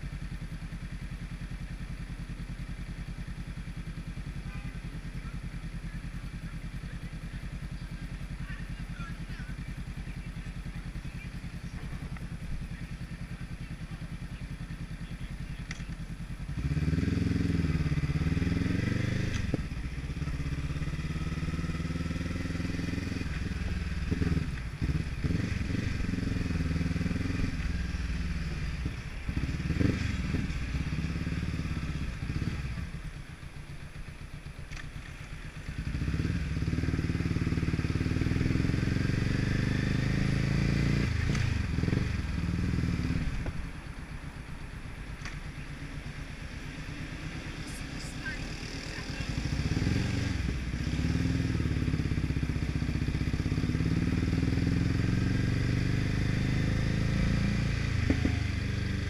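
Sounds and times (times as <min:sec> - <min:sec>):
motorcycle engine idling and accelerating: 0:00.0 - 0:59.0.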